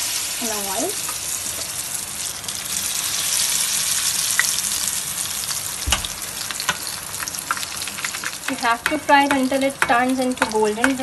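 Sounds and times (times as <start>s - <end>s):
food deep-frying in hot oil: 0.0s - 11.0s
thump: 5.8s - 6.1s.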